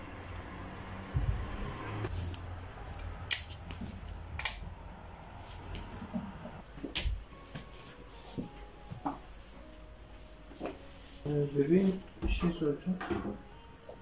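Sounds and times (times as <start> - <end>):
soft low thuds: 1.1 - 1.6.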